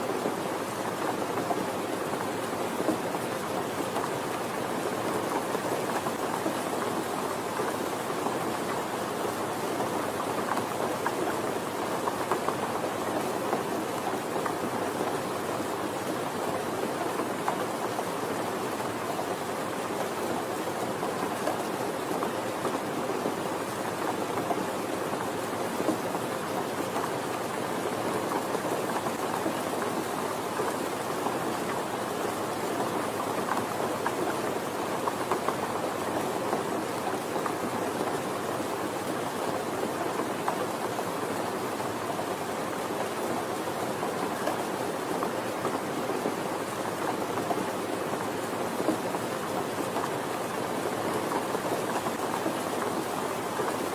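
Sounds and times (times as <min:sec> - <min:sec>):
steady rainfall: 0:00.0 - 0:53.9.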